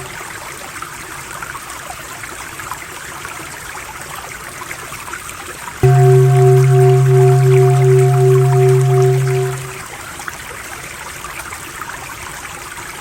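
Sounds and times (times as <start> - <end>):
low droning om tone: 5.8 - 9.8.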